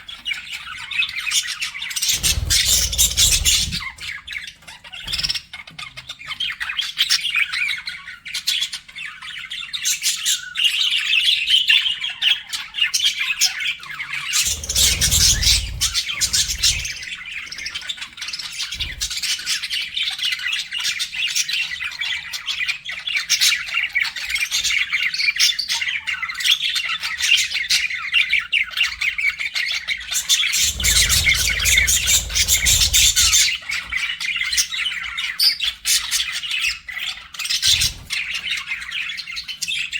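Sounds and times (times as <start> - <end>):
budgerigars chattering: 2.0 - 5.5, 14.3 - 17.4, 30.3 - 33.6
low rumble: 2.2 - 4.1, 30.6 - 33.5.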